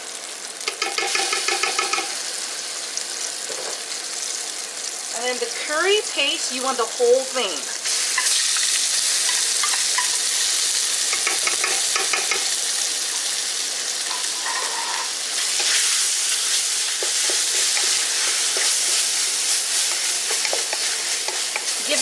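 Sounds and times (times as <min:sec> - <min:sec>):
hot oil sizzling: 0:00.0 - 0:22.0
spoon scraping against pot: 0:14.1 - 0:16.0.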